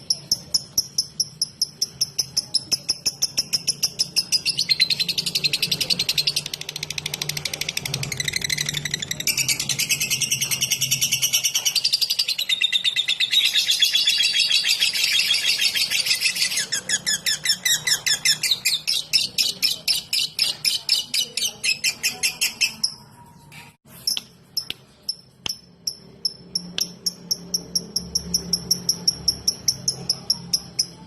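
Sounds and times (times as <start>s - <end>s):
bird chirping: 0.0s - 31.0s.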